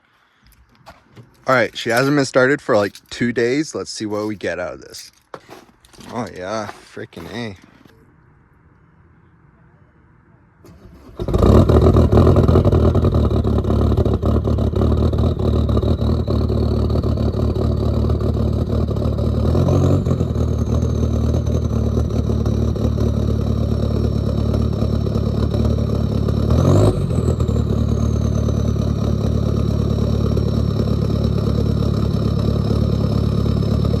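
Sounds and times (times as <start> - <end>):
diesel engine running: 10.6 - 34.0
engine revving: 10.6 - 34.0
high whine: 11.2 - 34.0.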